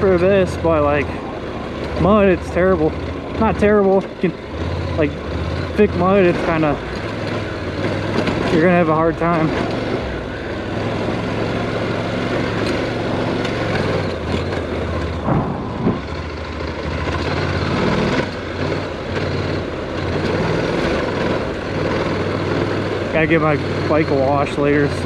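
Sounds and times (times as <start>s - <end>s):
motorcycle engine running: 0.0s - 25.0s
wind: 0.0s - 25.0s
tyre noise on loose dirt: 3.3s - 23.5s.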